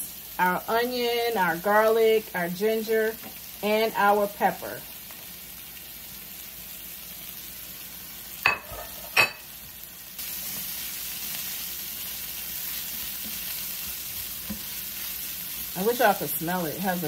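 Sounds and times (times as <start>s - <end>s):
vegetables sizzling in a skillet: 0.0s - 17.0s
spatula stirring: 12.4s - 15.8s.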